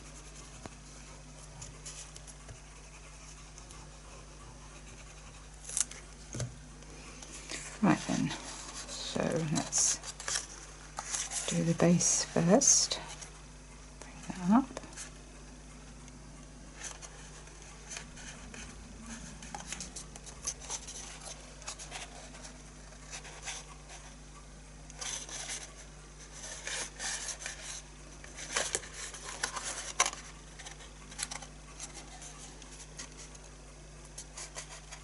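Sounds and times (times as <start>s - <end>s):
card stock rustling and crackling: 7.2s - 13.3s, 16.8s - 24.1s, 24.9s - 33.4s.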